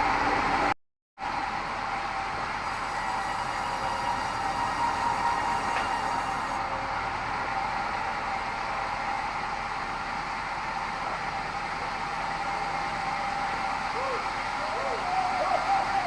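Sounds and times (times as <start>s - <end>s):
band saw whining: 2.6s - 6.6s.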